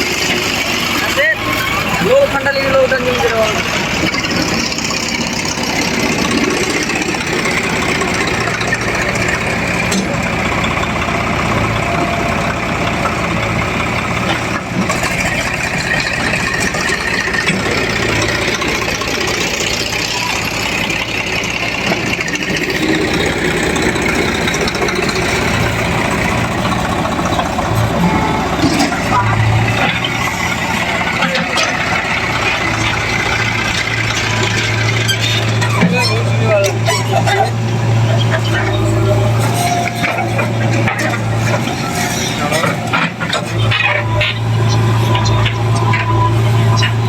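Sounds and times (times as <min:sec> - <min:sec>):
diesel engines running: 0:00.0 - 0:47.0.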